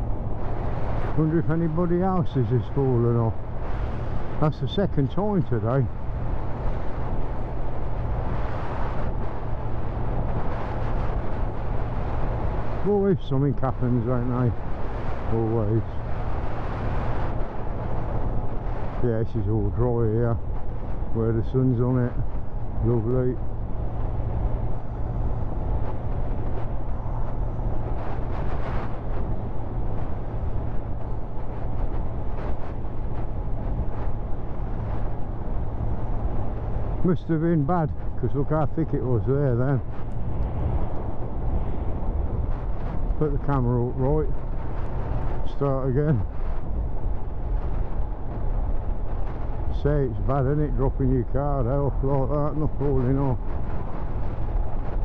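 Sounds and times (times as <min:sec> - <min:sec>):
motorcycle engine and road drone: 0:00.0 - 0:55.0
wind rush on microphone: 0:00.0 - 0:55.0.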